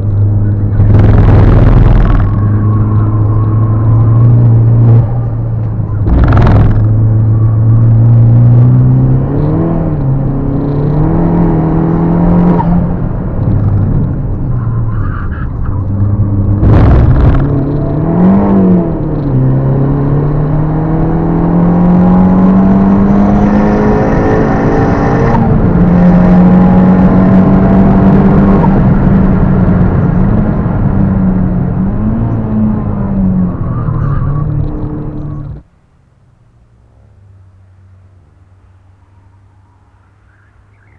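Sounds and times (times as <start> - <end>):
turbocharged car engine revving: 0.0 - 35.6.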